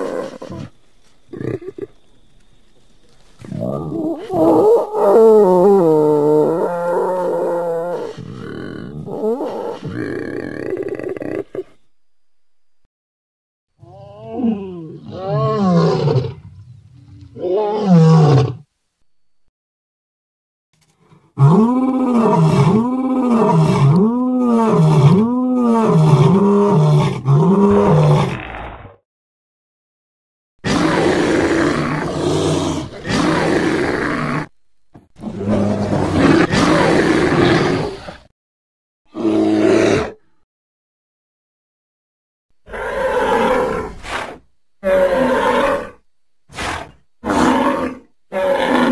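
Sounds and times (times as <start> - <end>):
deep creature calls: 46.6 - 48.9.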